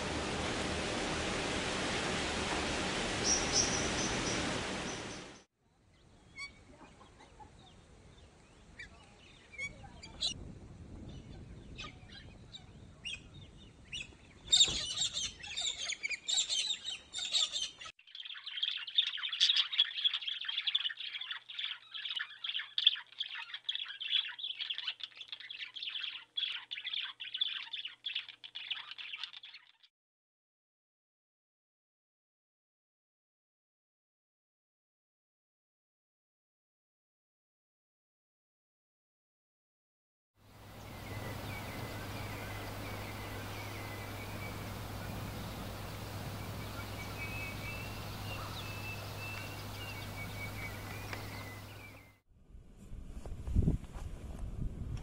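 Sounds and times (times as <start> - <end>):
steady hiss: 0.0 - 5.4, 40.6 - 52.0
high bird calls: 2.9 - 5.5, 11.2 - 29.9, 40.6 - 52.2
rapid high chirping: 40.7 - 52.1.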